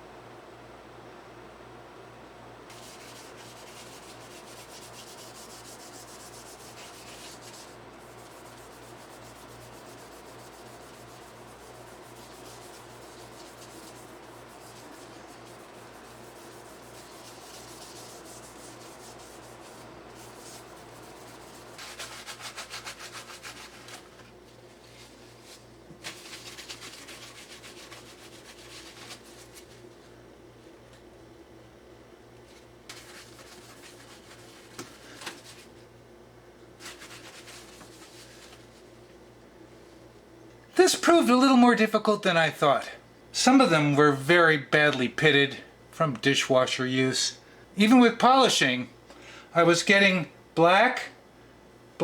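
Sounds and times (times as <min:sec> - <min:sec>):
abrasive sanding a handle: 0:02.7 - 0:24.1.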